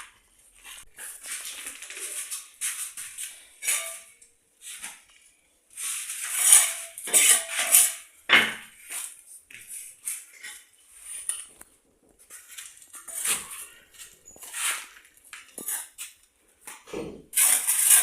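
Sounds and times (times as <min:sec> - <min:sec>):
metal scraping and clinking: 0:00.7 - 0:04.3, 0:05.8 - 0:09.2, 0:12.2 - 0:16.3, 0:17.3 - 0:18.0.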